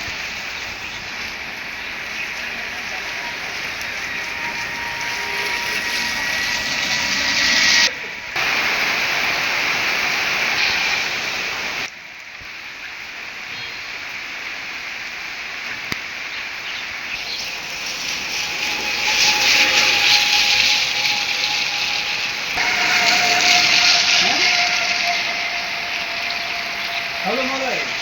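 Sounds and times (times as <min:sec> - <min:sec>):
rain falling: 0:00.0 - 0:28.0
thin steady tone: 0:00.4 - 0:08.4, 0:17.2 - 0:28.0.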